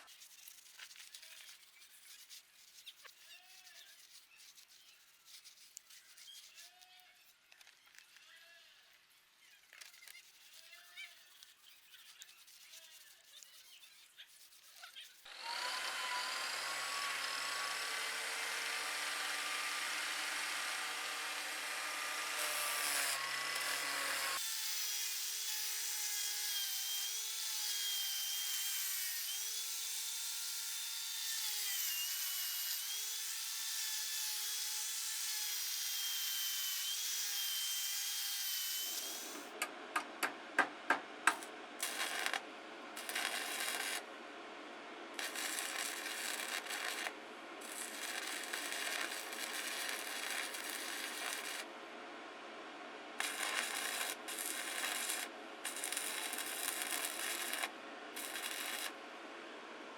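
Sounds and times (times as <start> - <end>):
power tool grinding: 15.3 - 24.4, 43.0 - 44.0, 45.2 - 51.7, 53.2 - 59.0
sharp clicks and knocks: 39.6 - 41.5.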